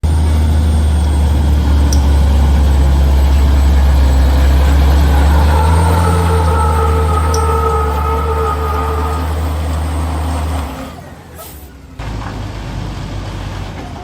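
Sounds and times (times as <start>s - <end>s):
truck diesel engine droning: 0.0s - 14.0s
high-pitched whine: 0.2s - 11.1s.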